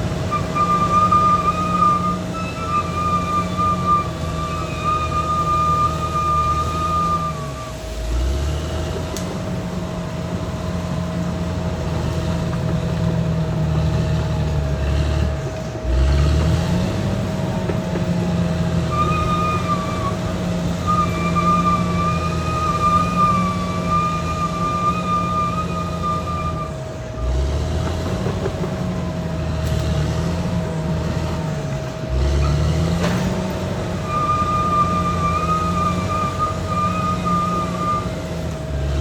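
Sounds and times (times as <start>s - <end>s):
high wavering machine whine: 0.0s - 8.2s, 18.2s - 27.2s, 30.5s - 39.0s
bulldozer diesel engine under load: 0.0s - 39.0s.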